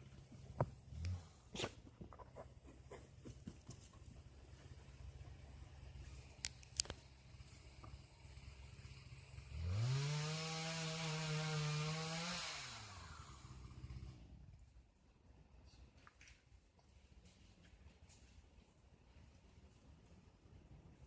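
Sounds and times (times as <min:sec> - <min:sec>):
small engine idling and revving: 0:00.0 - 0:01.8, 0:03.1 - 0:14.6
sharp clicks: 0:06.4 - 0:07.0.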